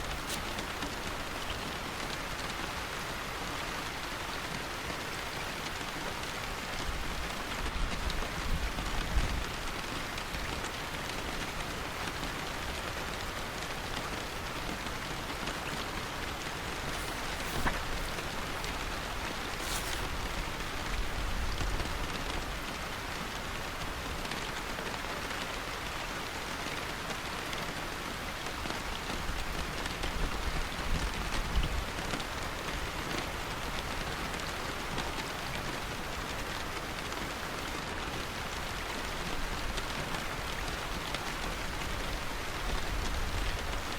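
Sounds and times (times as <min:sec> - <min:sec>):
brief sharp hiss: 0:00.0 - 0:00.7, 0:16.6 - 0:20.6
steady rain falling: 0:00.0 - 0:43.9.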